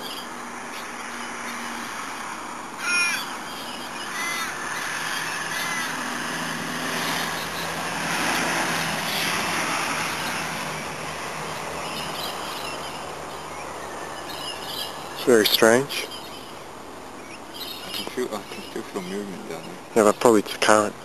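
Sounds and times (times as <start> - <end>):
bird calling: 0.0 - 7.8, 11.4 - 21.0
background hiss: 6.0 - 21.0.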